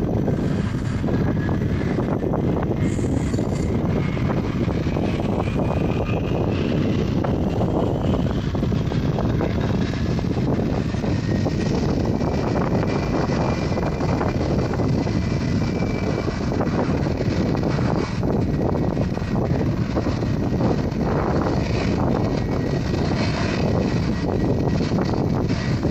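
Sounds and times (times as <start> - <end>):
jet engines running: 0.0 - 25.9.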